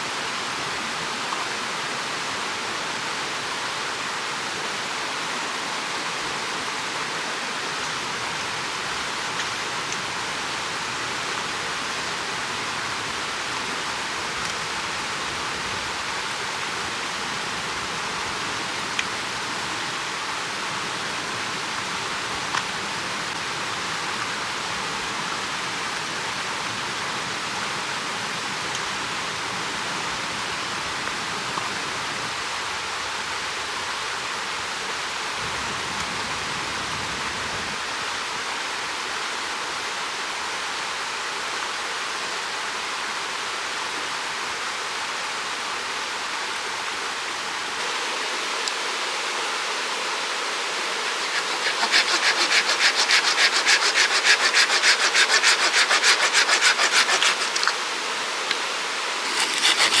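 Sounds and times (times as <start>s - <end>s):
steady rushing hiss: 45.0s - 60.0s
hand saw cutting wood: 50.7s - 57.9s, 59.2s - 60.0s.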